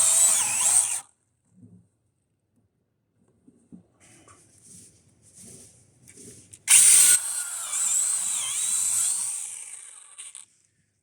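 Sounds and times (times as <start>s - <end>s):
chainsaw cutting tree trunk: 0.0s - 1.0s, 6.7s - 10.4s.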